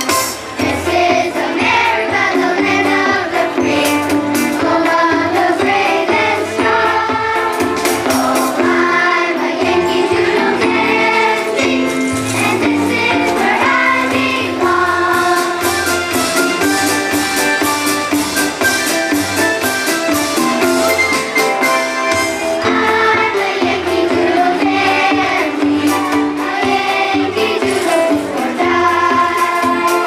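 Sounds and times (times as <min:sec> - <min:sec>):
instrumental accompaniment: 0:00.0 - 0:30.0
choir singing: 0:00.6 - 0:16.6, 0:22.6 - 0:30.0.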